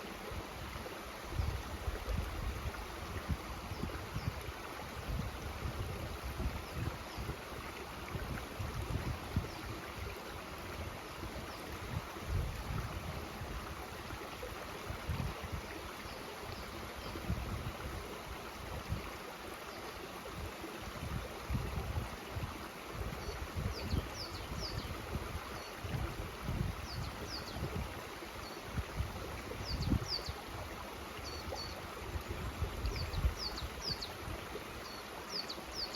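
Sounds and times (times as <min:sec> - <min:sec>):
stream rushing: 0:00.0 - 0:35.9
wind buffeting microphone: 0:01.3 - 0:10.0, 0:21.0 - 0:28.0, 0:28.8 - 0:30.3.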